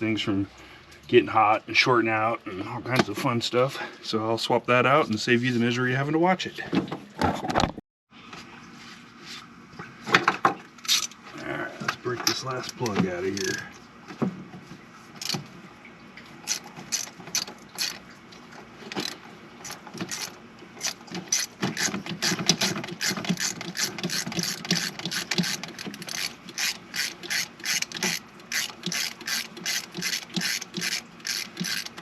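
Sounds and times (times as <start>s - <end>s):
hand ratchet clicking: 16.5s - 18.0s, 18.9s - 32.0s.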